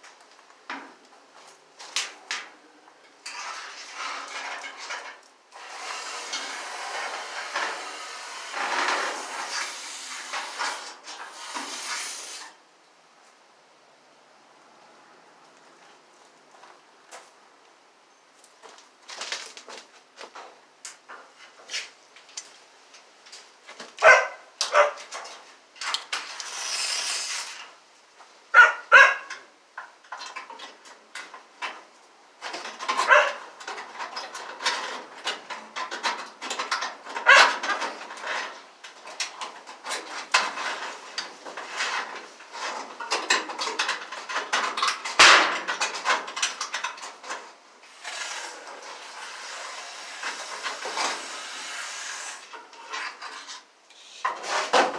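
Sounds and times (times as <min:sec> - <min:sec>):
dog barking: 0:24.0 - 0:25.0, 0:28.6 - 0:29.3, 0:33.1 - 0:33.4.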